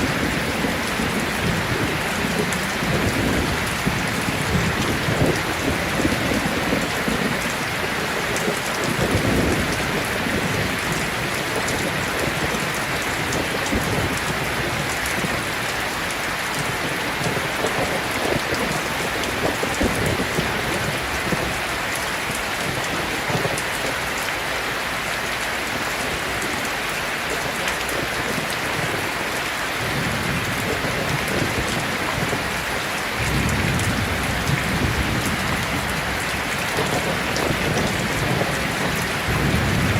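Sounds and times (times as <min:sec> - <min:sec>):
heavy rain falling: 0:00.0 - 0:39.9
distant thunder rolls: 0:29.8 - 0:39.9.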